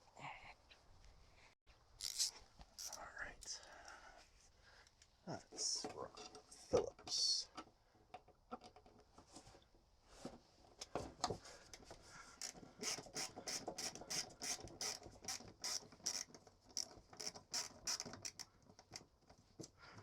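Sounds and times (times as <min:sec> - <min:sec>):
screwdriver ratchet clicks: 0:12.4 - 0:18.5.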